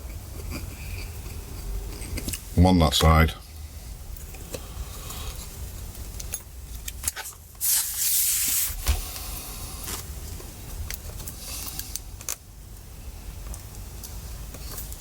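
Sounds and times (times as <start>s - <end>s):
rubbing hiss: 7.6s - 9.8s.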